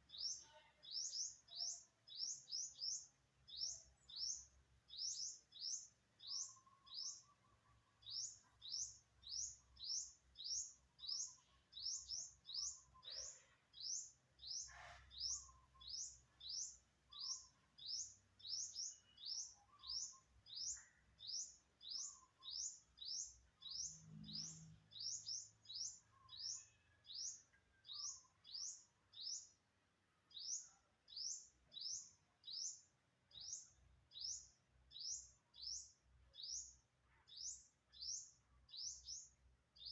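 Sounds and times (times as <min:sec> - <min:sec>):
faint lower bird calls: 0:00.0 - 0:29.6.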